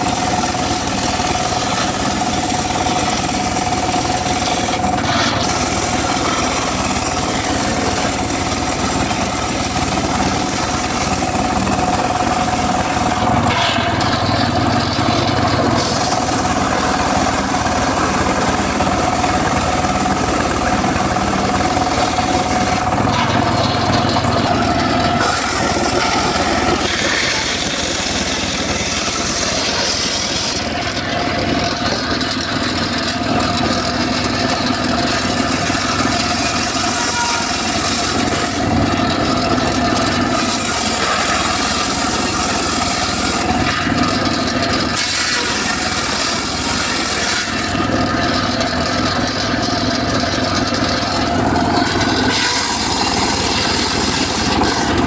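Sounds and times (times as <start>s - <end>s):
circular saw cutting wood: 0.0s - 55.0s.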